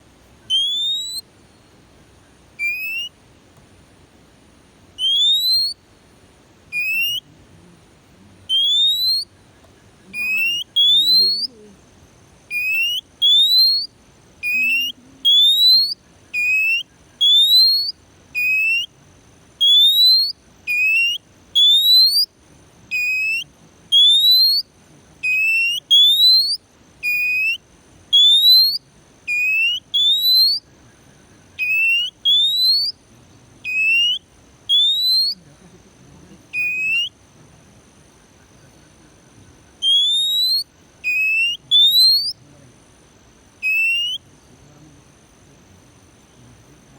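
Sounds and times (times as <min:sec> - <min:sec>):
bird whistling rising notes: 0:00.5 - 0:01.2, 0:02.6 - 0:03.1, 0:05.0 - 0:05.8, 0:08.5 - 0:09.3, 0:31.6 - 0:33.0, 0:33.7 - 0:35.4, 0:39.8 - 0:42.4, 0:43.6 - 0:44.2.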